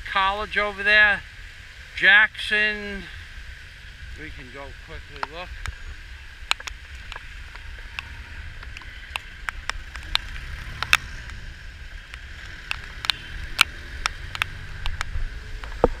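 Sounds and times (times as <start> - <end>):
rain hiss: 0.0 - 16.0
raindrops hitting plastic housing: 5.2 - 16.0.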